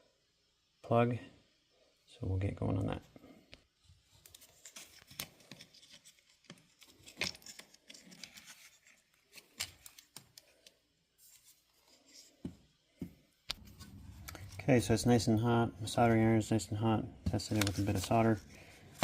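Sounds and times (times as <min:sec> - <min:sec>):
small tools clicking and scraping: 0:04.6 - 0:10.8.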